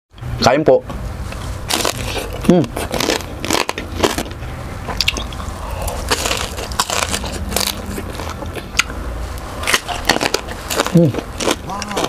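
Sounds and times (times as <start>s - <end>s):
chewing crispy pork: 1.4s - 12.0s.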